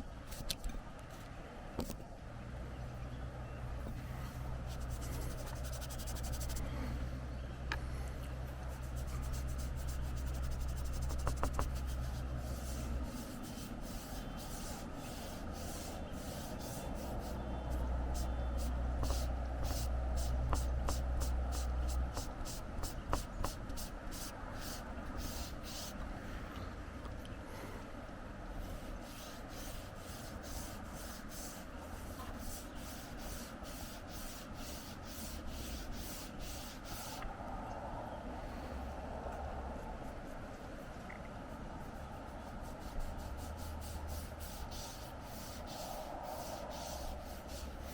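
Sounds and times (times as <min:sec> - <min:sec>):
low wind rumble: 0:00.8 - 0:47.9
pencil rubbing on paper: 0:04.7 - 0:06.7, 0:08.6 - 0:26.0, 0:28.7 - 0:37.2, 0:41.8 - 0:47.9
wind rumble on microphone: 0:36.0 - 0:47.9.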